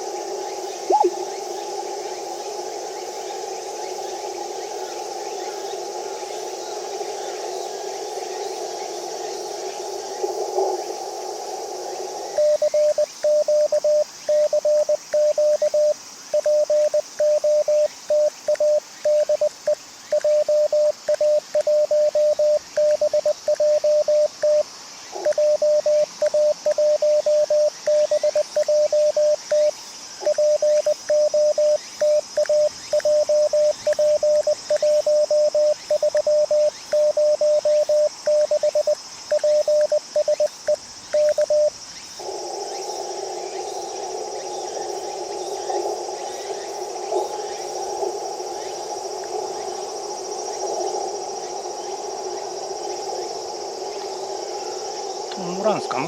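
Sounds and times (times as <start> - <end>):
radio receiver hiss: 0.8 - 1.4
morse code tone: 20.2 - 24.6, 25.3 - 29.7, 30.3 - 40.5.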